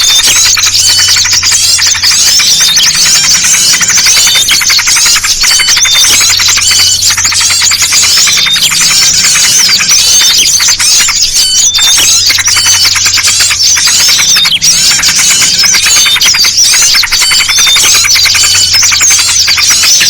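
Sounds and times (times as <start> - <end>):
bulbul calls: 0.0 - 20.0
chorus of songbirds: 0.0 - 20.0.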